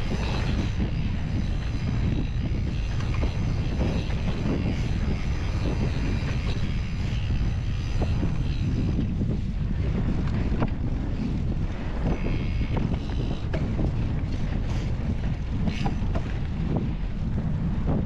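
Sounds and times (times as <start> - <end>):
bike tyres on dirt trail: 0.0 - 18.0
wind buffeting microphone: 0.0 - 18.0.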